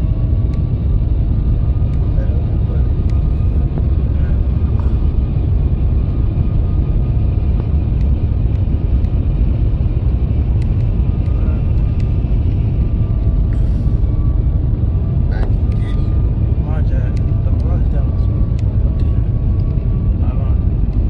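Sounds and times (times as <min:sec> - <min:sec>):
jet cabin engine rumble: 0:00.0 - 0:21.0.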